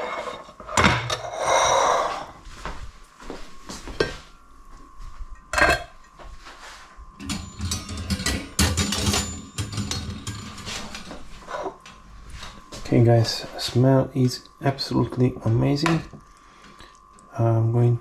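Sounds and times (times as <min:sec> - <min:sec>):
utensils clinking against pot and plates: 0:05.4 - 0:06.2, 0:07.2 - 0:11.8.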